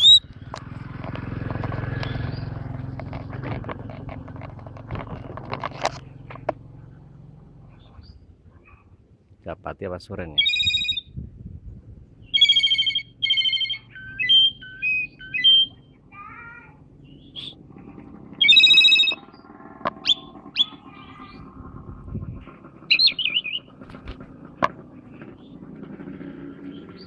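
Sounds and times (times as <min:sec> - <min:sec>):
starling singing: 0:00.0 - 0:00.2, 0:10.4 - 0:11.1, 0:12.2 - 0:16.4, 0:18.3 - 0:22.0, 0:22.8 - 0:23.8.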